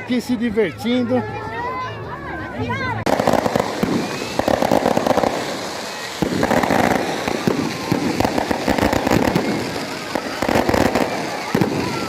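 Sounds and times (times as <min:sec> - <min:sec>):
firecrackers crackling: 0:02.9 - 0:12.0.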